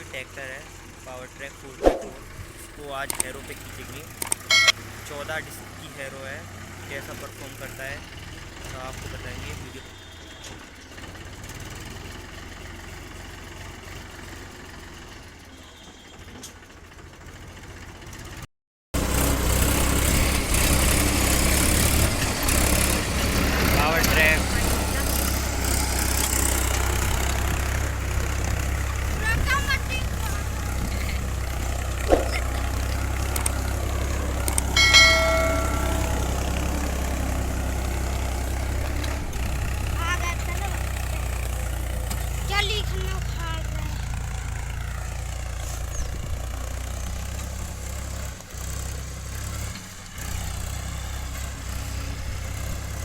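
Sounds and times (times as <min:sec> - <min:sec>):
tractor diesel engine idling: 0:00.0 - 0:16.0, 0:19.0 - 0:53.0
metallic clang: 0:04.5 - 0:04.8, 0:34.7 - 0:36.7.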